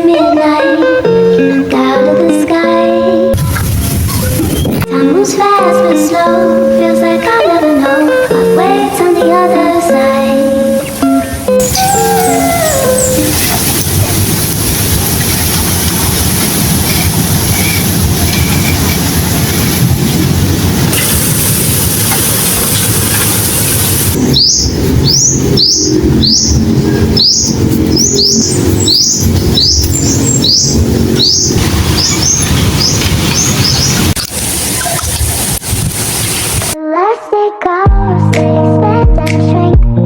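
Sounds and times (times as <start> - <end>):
loud background noise: 0.0 - 36.8
bird chirping: 11.6 - 13.7, 22.7 - 34.2.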